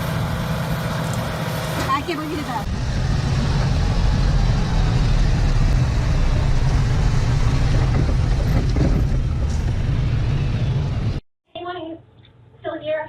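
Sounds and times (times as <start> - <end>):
large vehicle engine running: 0.0 - 11.2.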